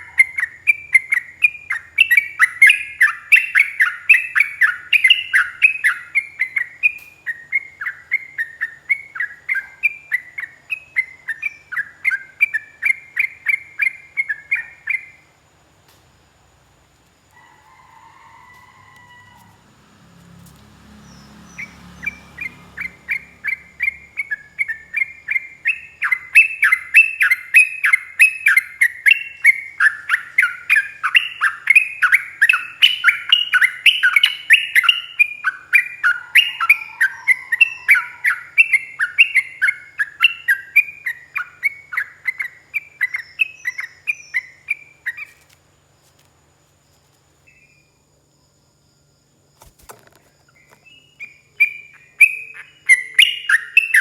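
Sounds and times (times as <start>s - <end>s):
click: 15.9s - 16.1s.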